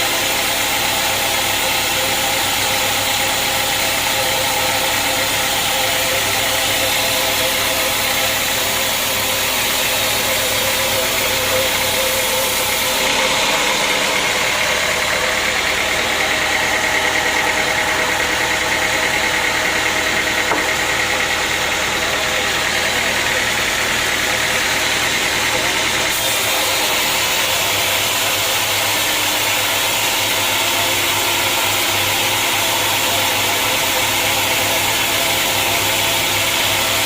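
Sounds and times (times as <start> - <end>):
sawmill machinery running: 0.0 - 37.0.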